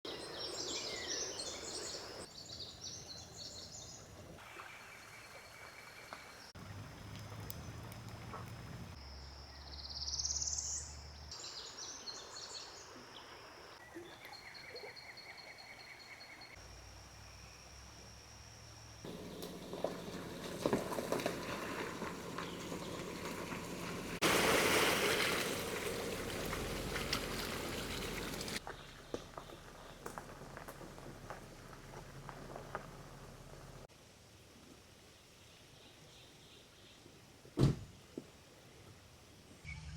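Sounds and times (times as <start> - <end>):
steady outdoor noise: 0.1 - 14.6, 16.4 - 39.9
birds chirping and singing: 19.1 - 24.1
creek water flowing: 19.1 - 28.6.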